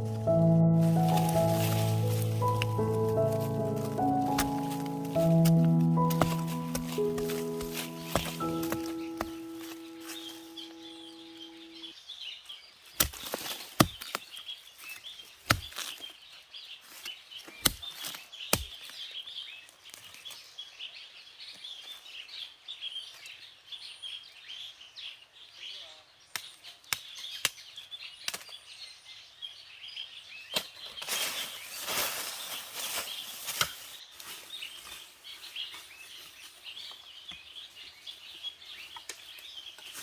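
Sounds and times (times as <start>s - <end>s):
background music: 0.0s - 11.8s
high-pitched chirping: 0.0s - 11.8s.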